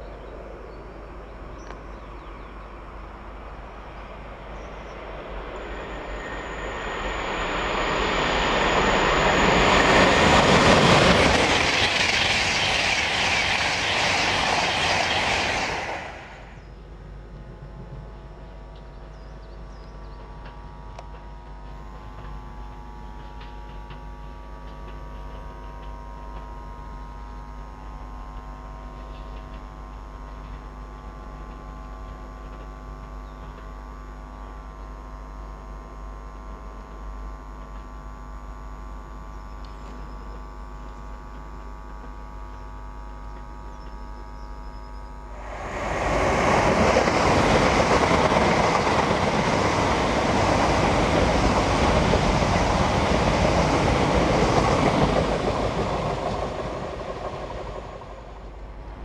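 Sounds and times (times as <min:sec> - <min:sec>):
fast train rushing roar: 0:00.0 - 0:18.5, 0:45.2 - 0:59.0
electric train humming: 0:00.0 - 0:59.0.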